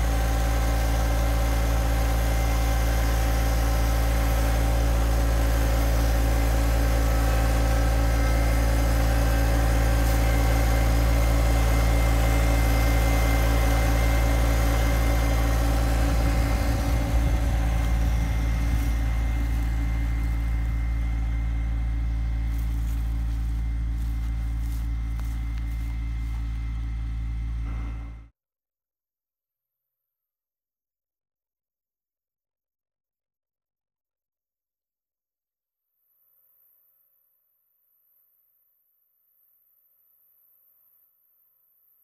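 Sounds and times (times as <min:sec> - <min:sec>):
tractor diesel engine running: 0:00.0 - 0:28.3.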